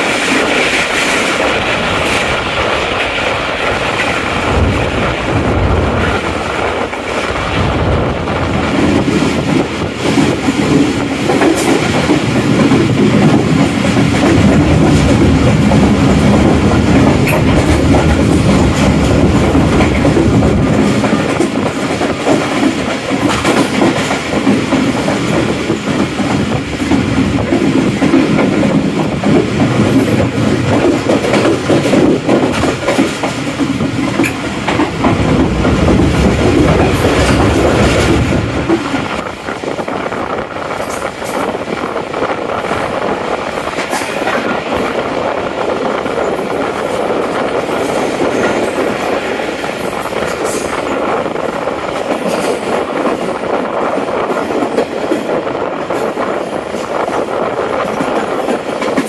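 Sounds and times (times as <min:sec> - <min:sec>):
train coach rumbling: 0:00.0 - 0:59.0
wheels clattering over rail joints: 0:08.6 - 0:39.9.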